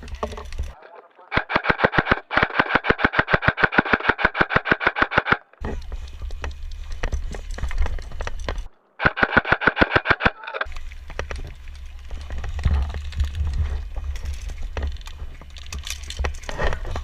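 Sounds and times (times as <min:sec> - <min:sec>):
airsoft rifle firing burst: 0:01.4 - 0:05.4, 0:09.0 - 0:10.4
low rumbling handling noise: 0:10.7 - 0:17.0.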